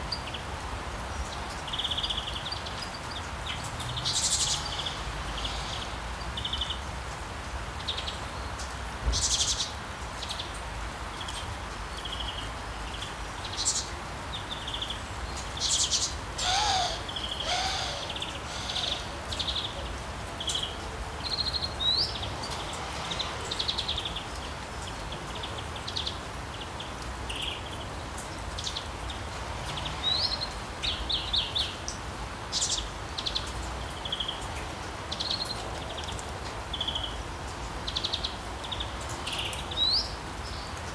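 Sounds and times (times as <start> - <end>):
background hiss: 0.0 - 40.8
birds chirping and trilling: 14.5 - 26.6
lower bird call: 16.4 - 19.7.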